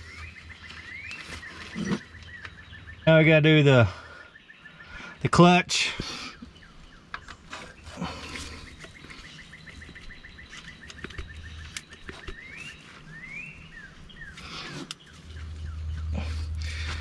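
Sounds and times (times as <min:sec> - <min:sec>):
bird singing trills and whistles: 0:00.0 - 0:16.8.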